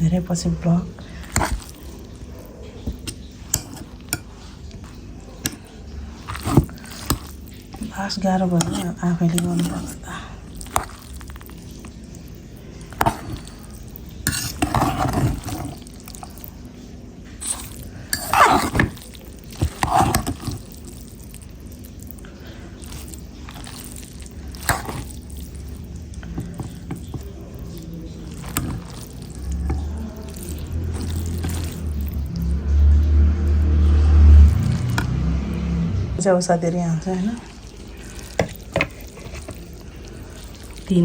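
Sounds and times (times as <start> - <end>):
dishes and cutlery clinking: 1.2 - 8.0, 12.8 - 16.4, 17.4 - 20.8, 22.8 - 32.2, 38.2 - 39.8
clatter and scraping: 6.2 - 7.9, 13.0 - 16.3, 17.4 - 20.7, 22.9 - 25.2, 28.3 - 32.3.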